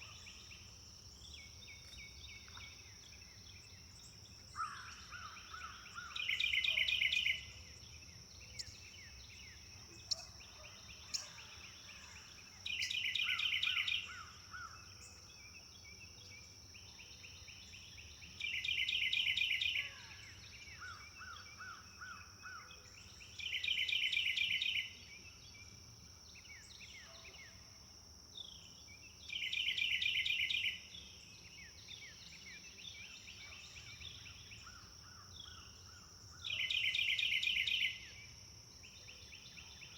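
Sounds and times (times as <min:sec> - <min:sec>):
faint bird chirps: 0:00.0 - 0:27.7.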